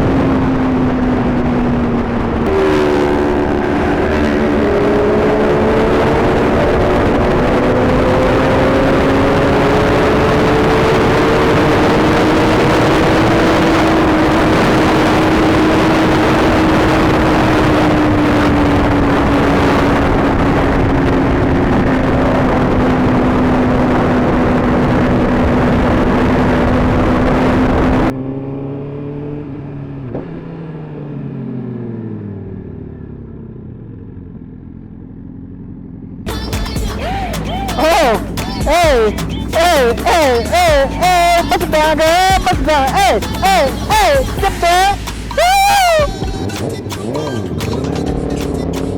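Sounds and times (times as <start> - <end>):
motorcycle engine at speed: 0.0 - 36.3.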